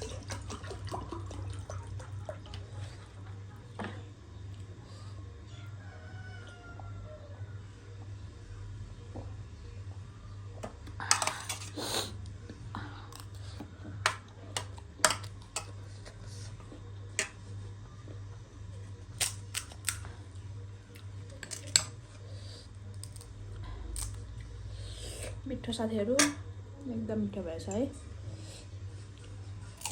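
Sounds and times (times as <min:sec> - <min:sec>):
crunching crisp snack: 0:19.0 - 0:20.2, 0:22.9 - 0:24.3, 0:29.7 - 0:29.9.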